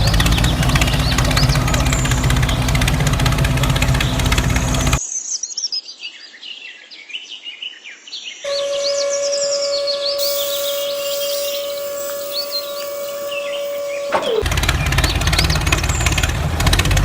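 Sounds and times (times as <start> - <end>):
birds chirping: 0.0 - 5.0, 8.4 - 16.5
small engine running: 0.0 - 5.0, 10.2 - 17.0
steady high hum: 8.5 - 14.6.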